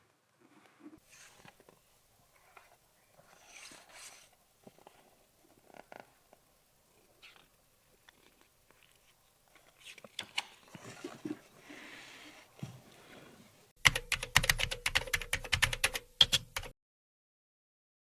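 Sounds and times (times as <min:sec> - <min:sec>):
fast loud clicks and taps: 0:13.9 - 0:16.7.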